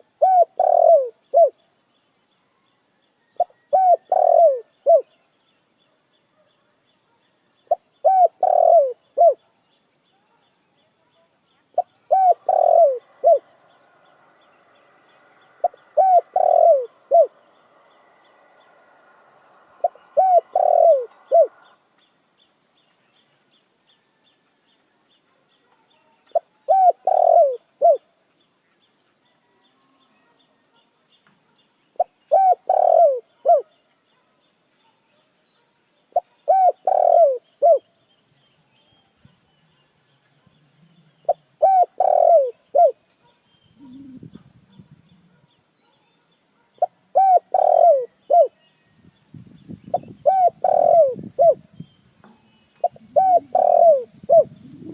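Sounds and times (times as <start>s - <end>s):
dove cooing: 0.0s - 1.6s, 3.4s - 5.1s, 7.7s - 9.4s, 11.8s - 13.5s, 15.6s - 17.4s, 19.8s - 21.8s, 26.3s - 28.0s, 32.0s - 33.7s, 36.2s - 37.8s, 40.9s - 43.0s, 43.8s - 45.5s, 46.8s - 48.6s, 49.9s - 51.6s, 52.8s - 54.9s.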